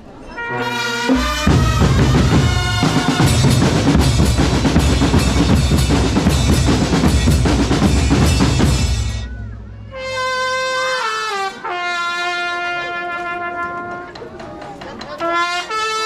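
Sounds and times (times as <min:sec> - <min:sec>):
held pitched brass notes: 0:00.3 - 0:14.2, 0:15.2 - 0:16.0
bass drums and snares beating: 0:01.2 - 0:09.8.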